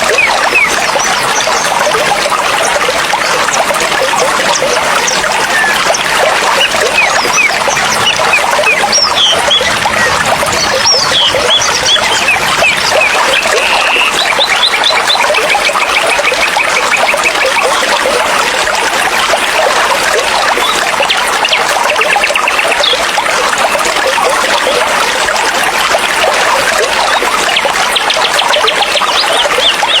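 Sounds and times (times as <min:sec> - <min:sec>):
stream running over rocks: 0:00.0 - 0:30.0
small birds chirping: 0:04.0 - 0:18.0.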